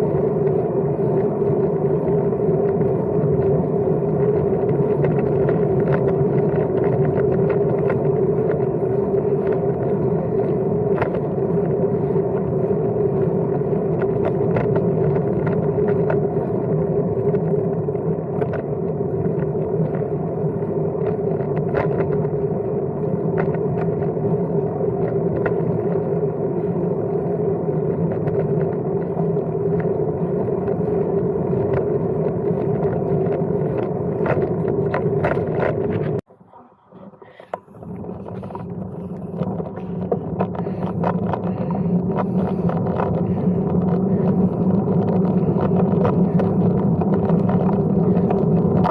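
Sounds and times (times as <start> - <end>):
small clicks and rattles: 0.0 - 36.2, 37.4 - 48.9
bicycle tyres and drivetrain rumble: 0.0 - 36.3, 37.2 - 48.9.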